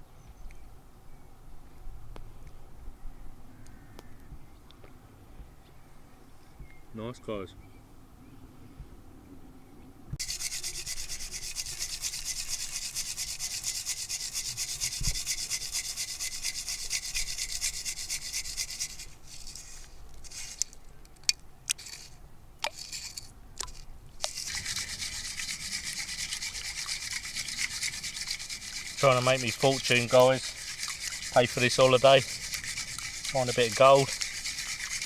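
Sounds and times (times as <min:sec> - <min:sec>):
gravel scraping in a gold pan: 0:10.2 - 0:20.8, 0:21.7 - 0:35.0.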